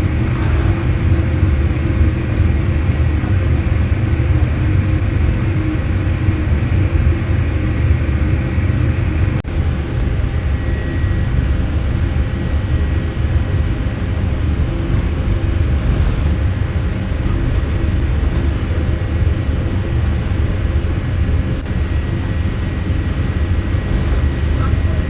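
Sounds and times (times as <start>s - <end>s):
faint high whines: 0.0s - 6.8s, 21.6s - 25.0s
jet engine rumble in cabin: 0.0s - 25.0s.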